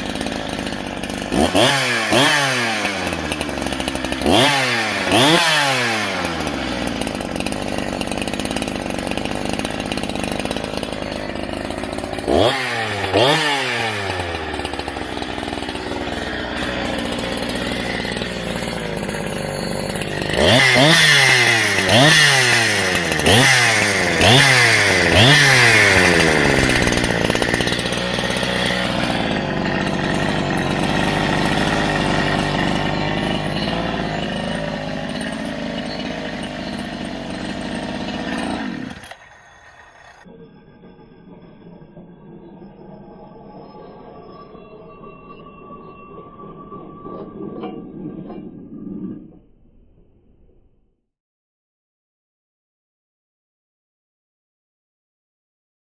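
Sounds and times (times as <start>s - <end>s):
chainsaw idling and revving: 0.0s - 42.0s.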